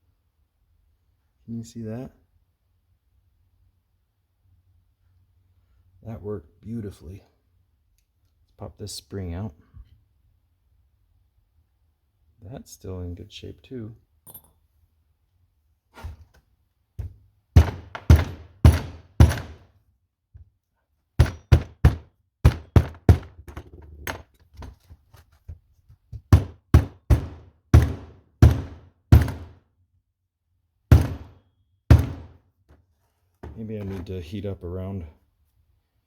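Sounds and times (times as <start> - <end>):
sharp knocks on metal: 17.0 - 19.6, 21.2 - 24.2, 26.2 - 29.5, 30.9 - 32.4.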